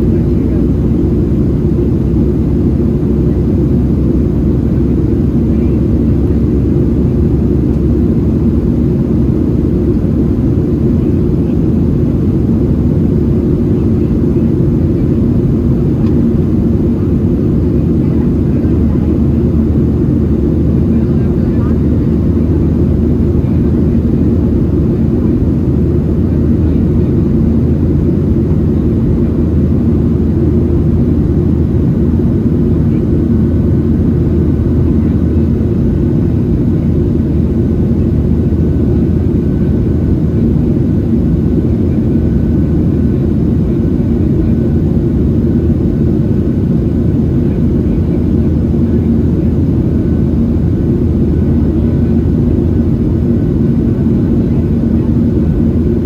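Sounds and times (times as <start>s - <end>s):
constant low hum: 0.0s - 56.0s
jet engines droning: 0.0s - 56.0s.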